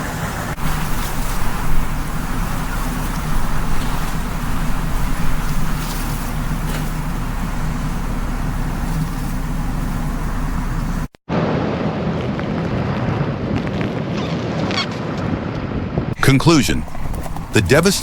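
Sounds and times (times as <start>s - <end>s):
road traffic: 0.0s - 11.2s, 16.2s - 18.0s
heavy rumble: 0.0s - 14.2s, 15.1s - 18.0s
gusting wind: 0.0s - 18.0s.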